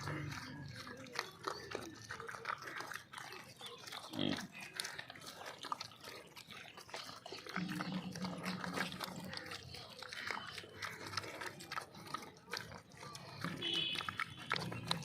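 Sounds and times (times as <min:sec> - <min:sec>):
pig grunt: 0:00.0 - 0:15.0
pigs chewing: 0:00.0 - 0:15.0.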